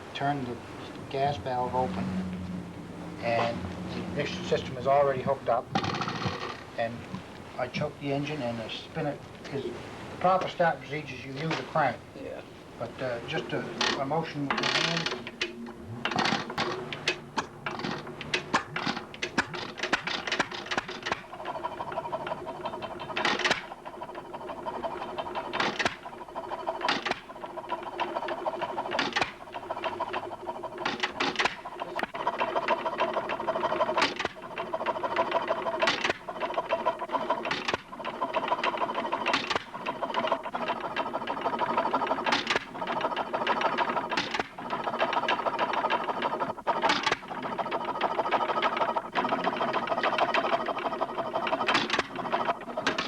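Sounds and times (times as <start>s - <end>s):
marine engine clatter: 0.0s - 53.0s
engine firing bangs: 0.4s - 6.3s.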